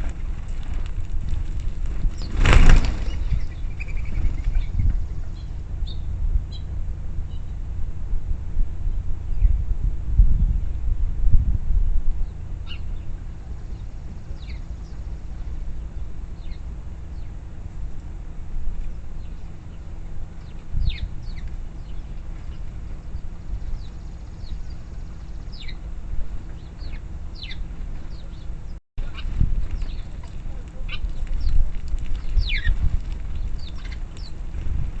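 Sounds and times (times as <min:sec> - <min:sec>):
small birds chirping: 0:00.0 - 0:07.7, 0:12.2 - 0:34.9
steady low rumble: 0:00.0 - 0:35.0.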